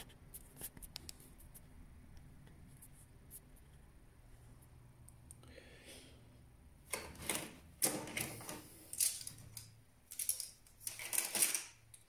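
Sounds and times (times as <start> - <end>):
rustling and clicking of computer parts: 6.8 - 12.0.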